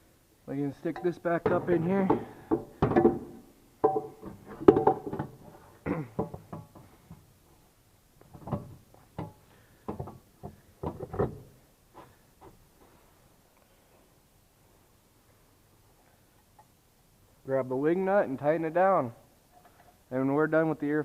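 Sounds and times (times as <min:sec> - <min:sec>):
knocks and bumps of plastic parts: 0:01.4 - 0:07.2, 0:08.2 - 0:11.6.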